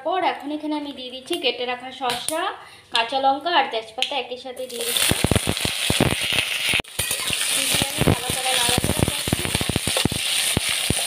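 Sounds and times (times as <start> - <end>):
vegetables sizzling in hot oil: 4.6 - 11.0
metal spatula scraping pan: 6.6 - 11.0.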